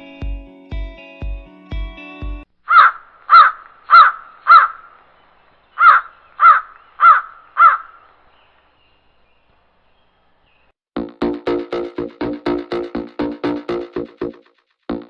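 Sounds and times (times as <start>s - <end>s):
crow cawing: 2.7s - 5.0s, 5.8s - 8.1s.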